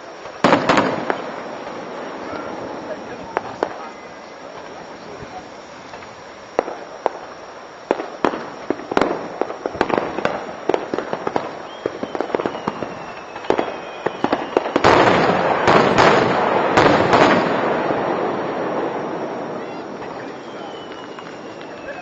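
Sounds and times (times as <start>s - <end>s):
dense fireworks crackling: 0.0s - 22.0s
fireworks bangs and cracks: 0.0s - 22.0s
faint whistling tone: 11.4s - 14.8s, 18.8s - 22.0s.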